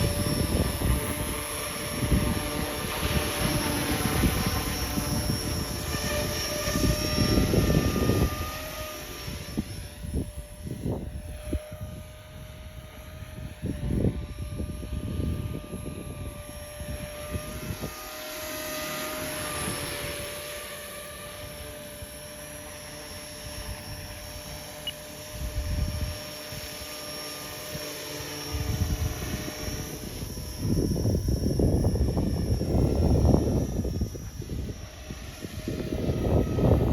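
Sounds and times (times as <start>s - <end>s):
model helicopter motor whine: 0.0s - 36.9s
wind buffeting microphone: 0.0s - 36.9s.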